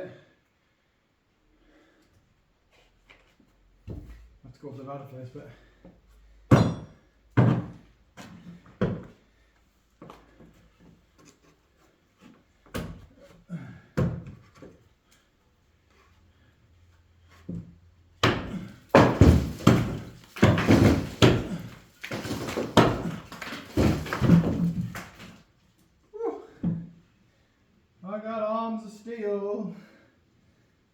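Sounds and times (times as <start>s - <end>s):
bricks and rubble clattering: 18.2s - 25.4s.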